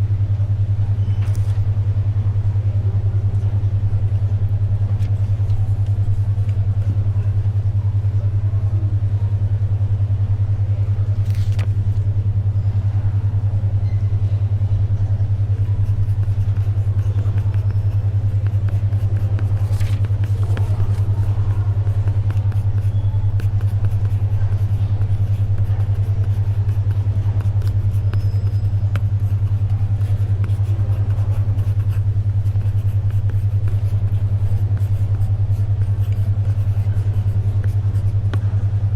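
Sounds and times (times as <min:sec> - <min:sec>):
pulsing low hum tone: 0:00.0 - 0:38.9
paper rustling: 0:11.2 - 0:11.7, 0:18.6 - 0:22.6.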